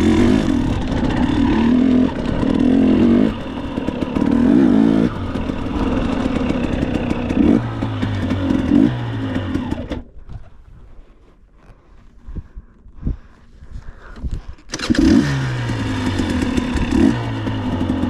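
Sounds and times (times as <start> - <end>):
dirt bike engine revving: 0.0 - 10.0, 14.7 - 18.0
engine clatter: 0.0 - 10.1, 14.7 - 18.0.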